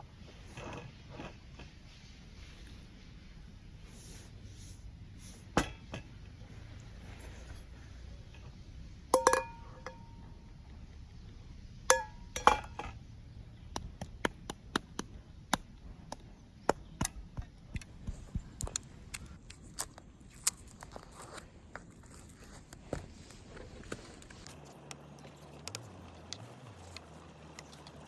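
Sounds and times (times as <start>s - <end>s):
dishes clinking: 9.1s - 10.3s, 11.9s - 13.0s.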